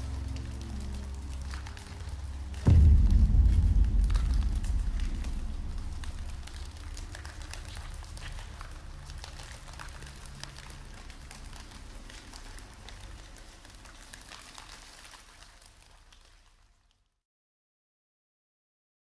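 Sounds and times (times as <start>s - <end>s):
rain patter: 0.0s - 17.0s
low rumble: 0.2s - 10.6s.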